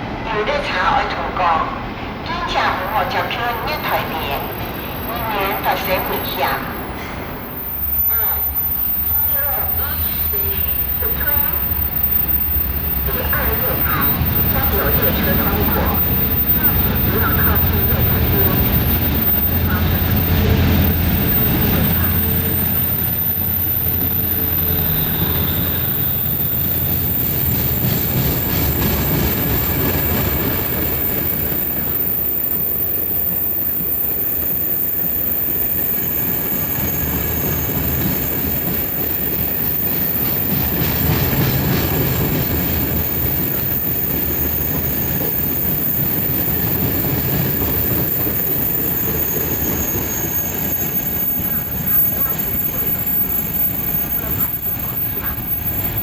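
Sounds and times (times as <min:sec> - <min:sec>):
train wheels rumbling: 0:00.0 - 0:56.0
clickety-clack over rail joints: 0:23.8 - 0:31.7, 0:36.5 - 0:56.0
thin wheel squeal: 0:43.0 - 0:56.0.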